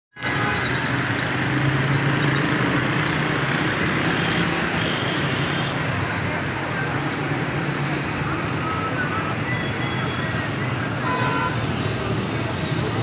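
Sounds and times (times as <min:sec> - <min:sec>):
street traffic: 0:00.1 - 0:13.0.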